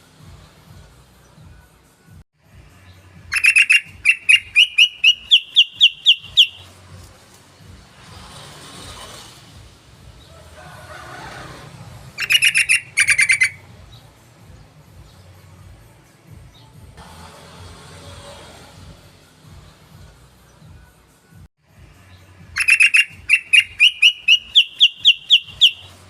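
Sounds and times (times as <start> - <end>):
bird calling sharp notes: 3.3 - 6.7, 12.2 - 13.7, 22.6 - 26.0.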